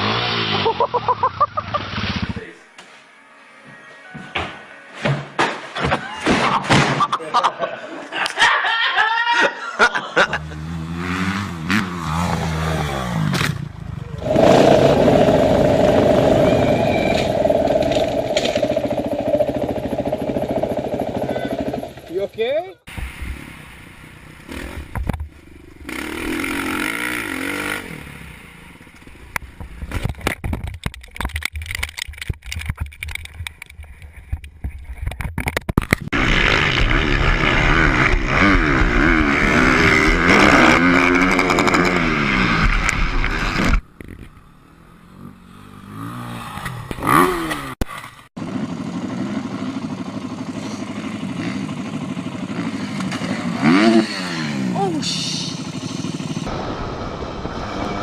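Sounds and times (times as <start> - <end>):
dirt bike engine revving: 0.0 - 2.5, 10.2 - 28.9, 36.1 - 58.0.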